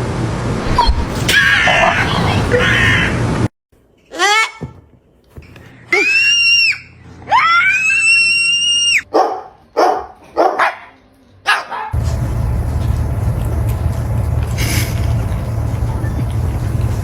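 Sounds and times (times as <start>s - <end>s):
dog howling: 0.6s - 3.3s
dog barking: 9.1s - 12.0s
loud steady rumbling: 12.0s - 17.0s.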